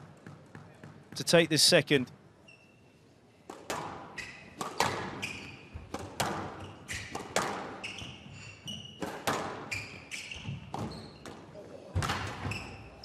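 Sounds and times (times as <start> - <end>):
shoe squeaks: 2.4 - 3.1, 4.1 - 5.9, 6.5 - 11.5, 12.3 - 13.0
squash ball hitting rackets and walls: 3.4 - 13.0.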